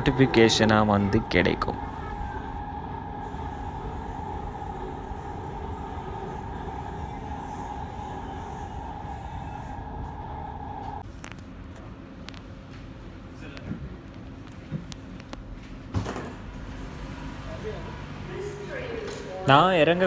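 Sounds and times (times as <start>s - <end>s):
train whine: 0.0s - 11.1s, 16.4s - 20.0s
train rumbling: 0.0s - 19.5s.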